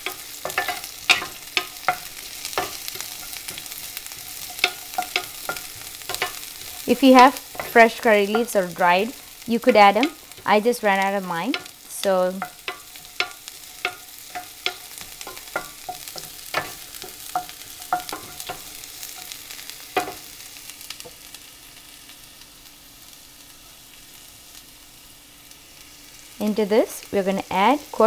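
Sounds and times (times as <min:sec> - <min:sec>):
wooden spoon knocking pan: 0:00.0 - 0:20.3
onions frying in oil: 0:00.0 - 0:28.0.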